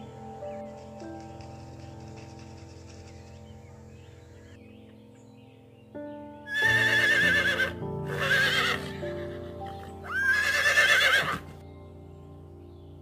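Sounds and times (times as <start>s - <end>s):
background music: 0.0s - 13.0s
horse whinnying: 6.5s - 11.5s.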